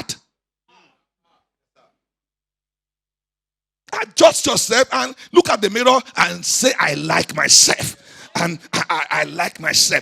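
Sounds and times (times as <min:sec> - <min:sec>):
man preaching: 0:00.0 - 0:00.3, 0:03.9 - 0:10.0.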